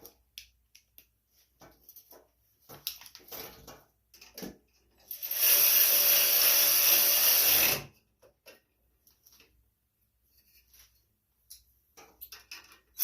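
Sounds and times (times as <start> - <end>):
faint clicks of parts handled: 0.0 - 4.9, 8.2 - 9.6, 10.3 - 13.0
power drill running: 5.1 - 7.9.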